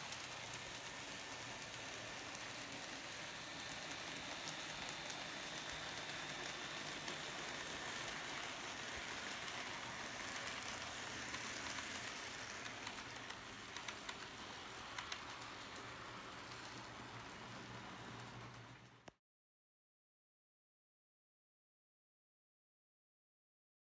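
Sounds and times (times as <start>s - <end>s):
model train rolling hiss: 0.0s - 19.1s.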